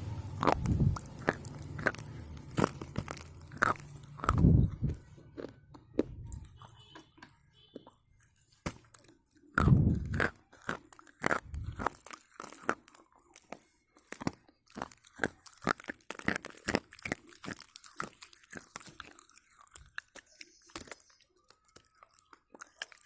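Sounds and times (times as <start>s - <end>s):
slate pencil bitten and chewed: 0.1s - 23.0s.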